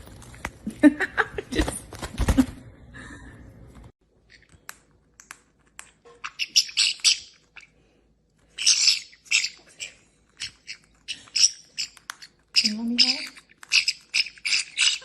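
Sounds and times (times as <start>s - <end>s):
parrot chirping and squawking: 6.0s - 7.8s, 8.4s - 15.0s.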